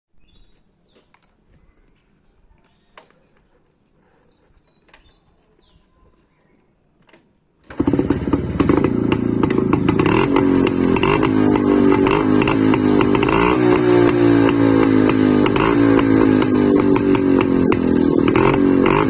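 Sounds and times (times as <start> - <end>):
faint bird chirps: 0.2 - 3.4, 4.0 - 6.9
motorcycle exhaust running: 7.7 - 19.0.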